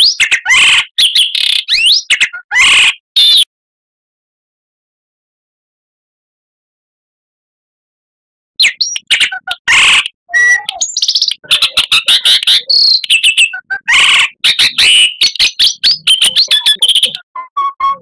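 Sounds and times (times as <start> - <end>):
bird singing whistles and trills: 0.0 - 3.5, 8.6 - 18.0.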